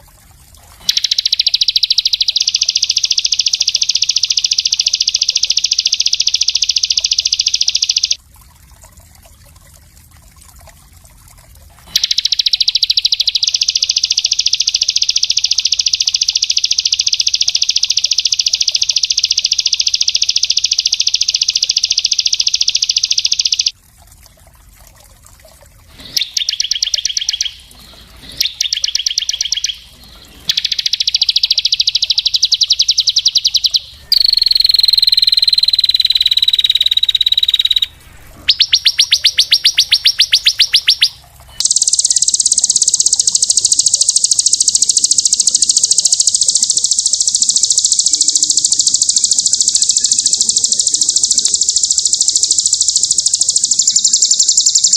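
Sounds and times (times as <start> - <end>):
songbird fast trilling: 0.8 - 8.2, 11.9 - 23.7, 26.0 - 54.9
downward-sliding bird whistle: 26.1 - 41.2.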